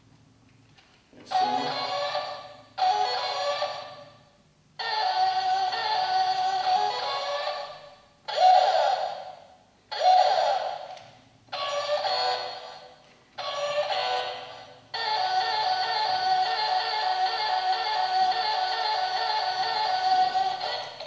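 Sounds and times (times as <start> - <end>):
electronic toy music snippets: 1.3 - 21.0.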